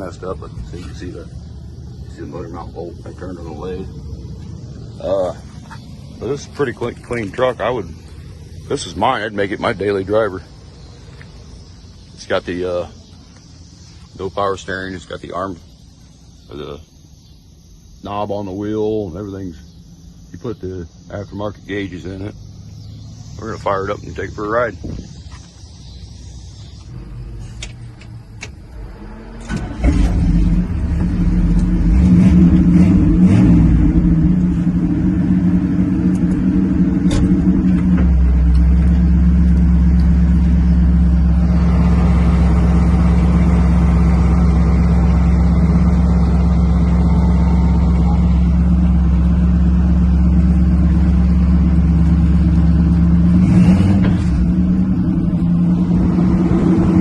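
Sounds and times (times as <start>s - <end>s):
car engine starting and running: 0.0s - 57.0s
deep low rumble: 30.0s - 57.0s.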